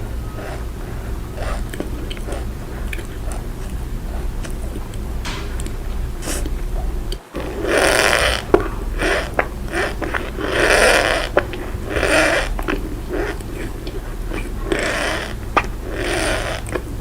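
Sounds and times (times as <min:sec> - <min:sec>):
cornstarch squeaking and crunching: 0:07.4 - 0:17.0.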